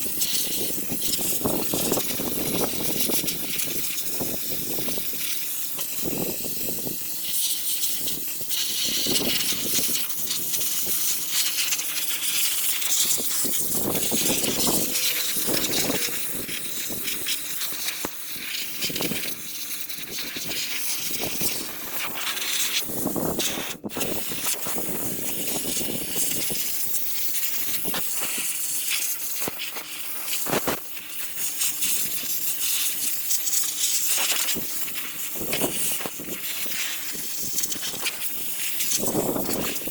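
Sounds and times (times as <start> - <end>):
air tool hissing: 0.2 - 17.8
faint steady hum: 12.8 - 17.6.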